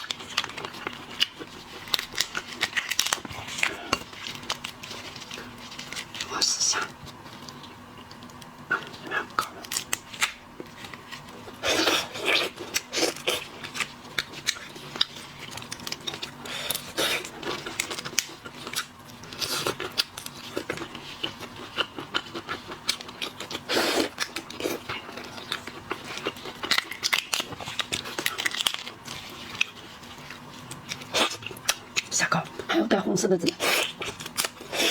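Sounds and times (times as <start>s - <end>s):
shellfish shells cracking: 0.0s - 6.3s, 9.6s - 11.1s, 25.2s - 32.1s, 33.8s - 34.7s.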